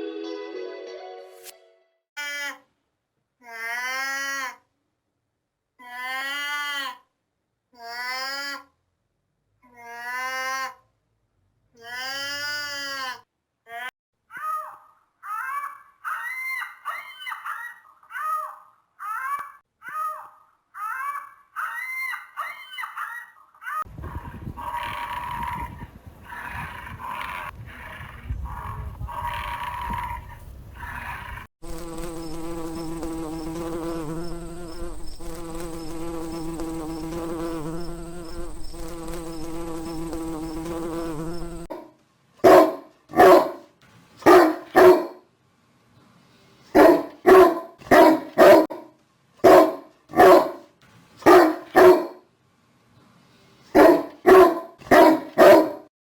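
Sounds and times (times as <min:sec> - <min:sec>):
steady buzzing hum: 0:31.6 - 0:41.7
dog barking loudly: 0:41.7 - 0:45.2, 0:46.8 - 0:52.2, 0:53.8 - 0:55.9.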